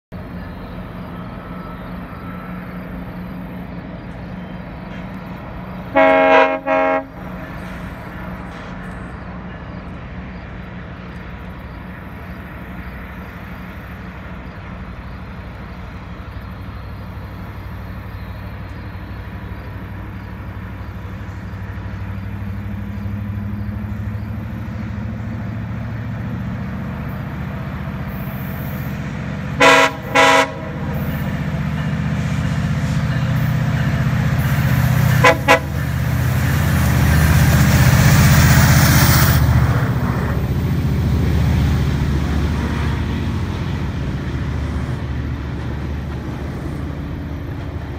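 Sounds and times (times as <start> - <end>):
diesel train engine rumble: 0.1 - 47.9
train horn blasts: 5.9 - 7.4, 29.6 - 31.3, 34.7 - 36.1.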